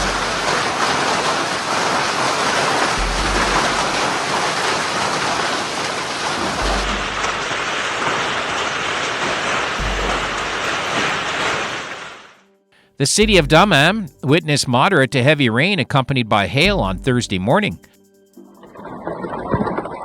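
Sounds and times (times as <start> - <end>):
dull low thumps: 0.0 - 1.8, 2.8 - 5.5, 6.4 - 7.6, 9.8 - 11.8, 13.2 - 14.2
heavy rain pouring: 0.0 - 12.4.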